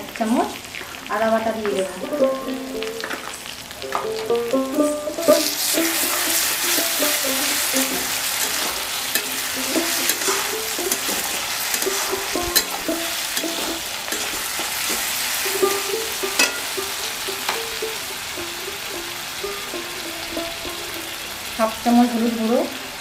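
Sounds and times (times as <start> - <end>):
masala sizzling in oil: 0.0 - 23.0
metal spatula scraping pan: 5.2 - 18.0.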